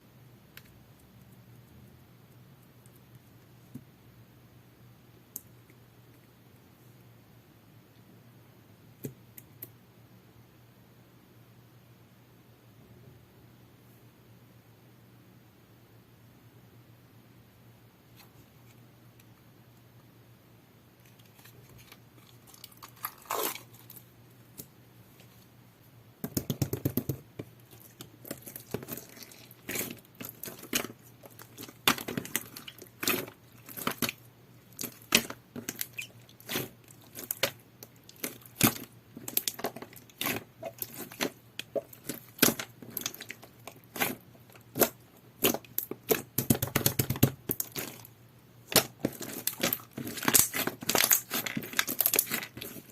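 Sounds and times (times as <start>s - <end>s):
slime squishing and crunching: 21.3s - 24.0s, 26.9s - 52.9s.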